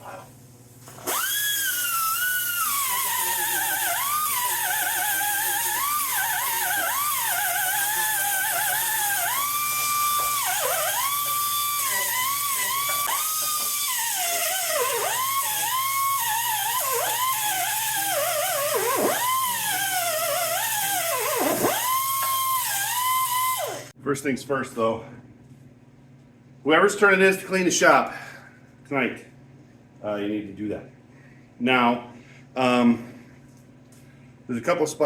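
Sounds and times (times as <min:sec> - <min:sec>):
grinder whining on metal: 0:01.0 - 0:23.9.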